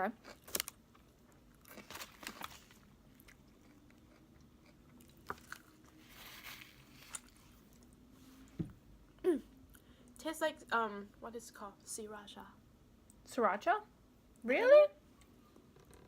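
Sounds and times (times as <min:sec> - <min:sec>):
chewing fries: 0:00.1 - 0:08.0.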